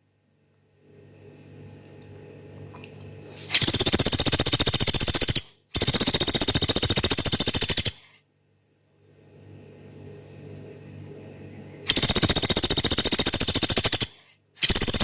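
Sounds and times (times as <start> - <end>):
woodpecker rattling trills: 3.6 - 8.0, 11.9 - 15.0.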